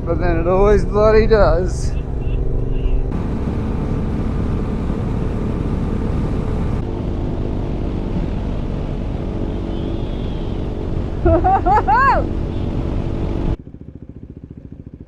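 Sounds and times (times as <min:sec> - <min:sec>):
road noise: 0:00.0 - 0:15.0
wind rush: 0:03.0 - 0:13.6
motorcycle engine running: 0:03.1 - 0:15.0.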